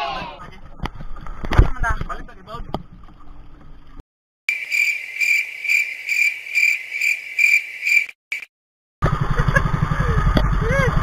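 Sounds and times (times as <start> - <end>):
cricket-like chirping: 4.5 - 8.5.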